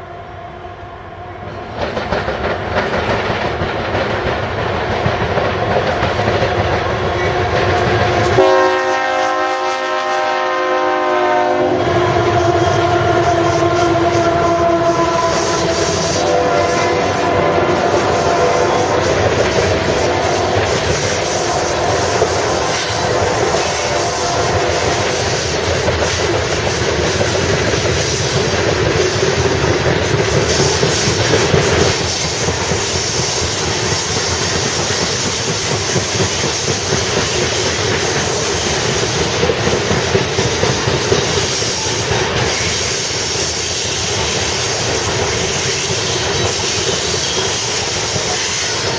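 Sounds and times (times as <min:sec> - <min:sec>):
train cars rumbling past: 0:00.0 - 0:48.9
train horn: 0:08.2 - 0:26.2, 0:45.5 - 0:48.9.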